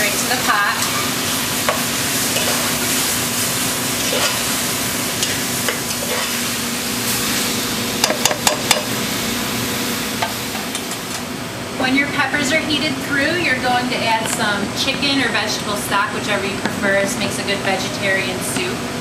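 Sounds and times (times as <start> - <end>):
vegetables sizzling in a saucepan: 0.0 - 11.2.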